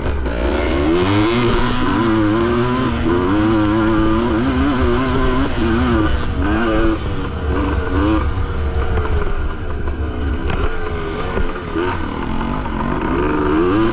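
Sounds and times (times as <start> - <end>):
two-stroke motorcycle engine revving: 0.0 - 13.9.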